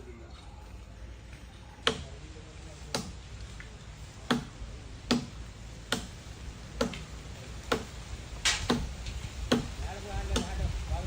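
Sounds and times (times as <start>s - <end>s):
tool striking wood: 1.8s - 2.1s, 2.9s - 3.2s, 4.2s - 4.5s, 5.1s - 6.2s, 7.7s - 8.9s, 9.5s - 9.7s, 10.3s - 10.6s.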